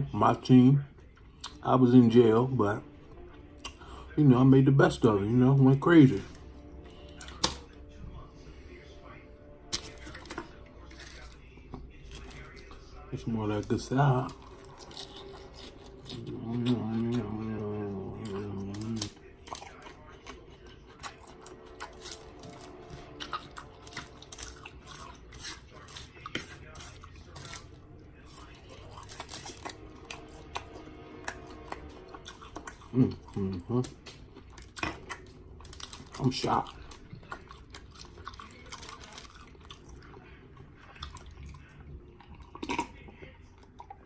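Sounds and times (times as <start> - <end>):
person chewing crunchy food: 9.6 - 44.0.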